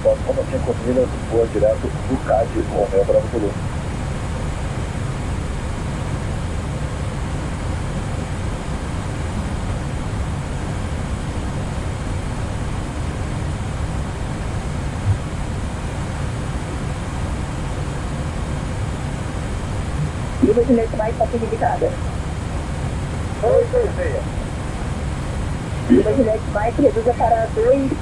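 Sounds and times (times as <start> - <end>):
airflow and engine rush: 0.0 - 28.0.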